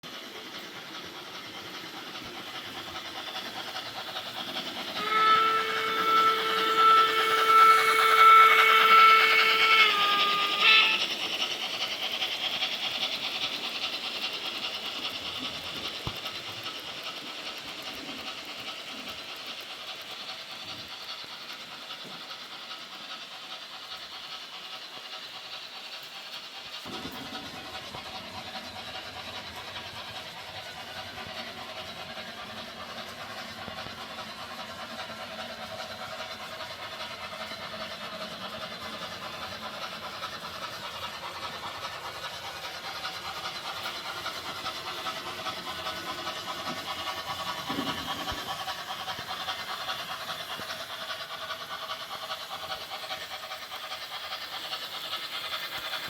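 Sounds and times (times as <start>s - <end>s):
model train rattling on track: 0.0s - 56.0s
model steam locomotive whistle: 4.7s - 11.9s.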